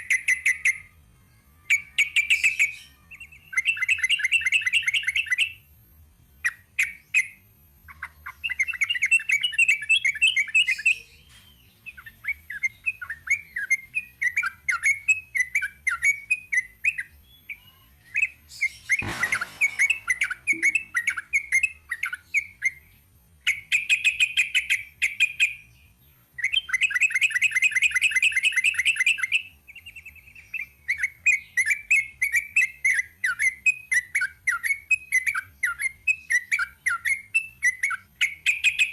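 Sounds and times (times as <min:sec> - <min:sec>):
sharp knock: 0:19.0 - 0:20.8.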